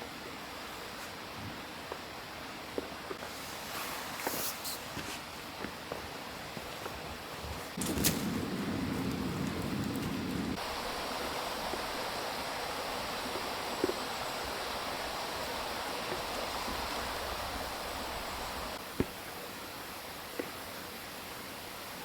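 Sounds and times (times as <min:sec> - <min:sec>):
stream rushing: 0:07.8 - 0:18.8.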